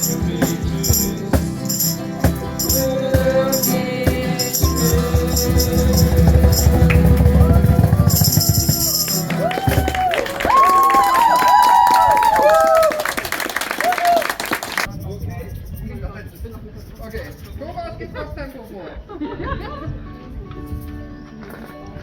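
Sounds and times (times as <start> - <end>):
voices: 0.0 - 9.6
ukuleles strumming: 0.0 - 10.6
tambourine shaken: 0.0 - 10.8.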